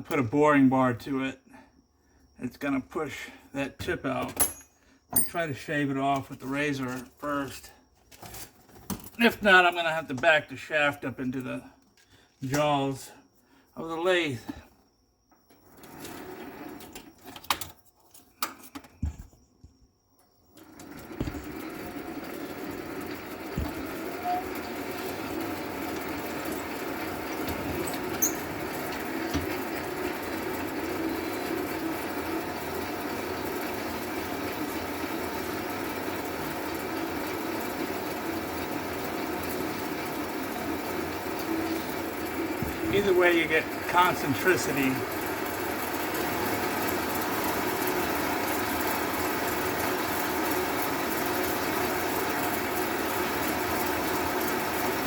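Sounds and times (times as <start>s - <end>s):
lathe motor humming: 20.8s - 55.0s.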